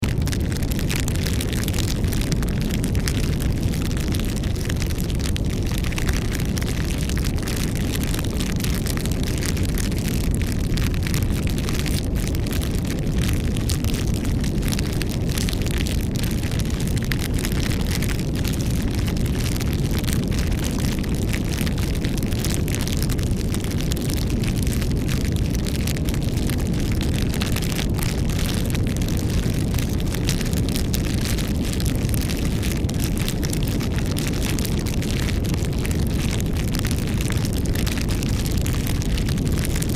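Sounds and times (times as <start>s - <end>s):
low fire rumble: 0.0s - 39.9s
wood crackling and popping: 0.0s - 39.9s.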